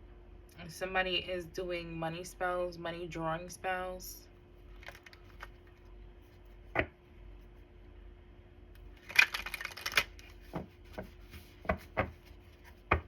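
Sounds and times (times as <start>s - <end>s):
cards rustling: 4.7s - 5.9s, 8.9s - 13.0s.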